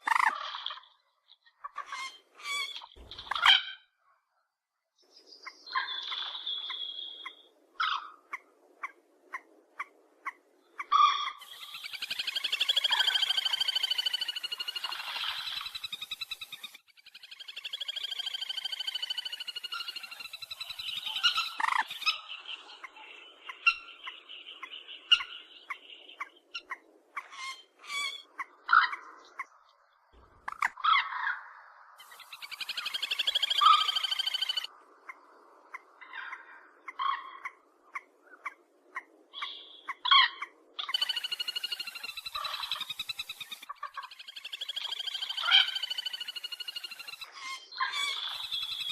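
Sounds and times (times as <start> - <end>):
bird call: 5.7 - 8.0, 11.2 - 26.3, 32.0 - 34.7, 40.9 - 48.9.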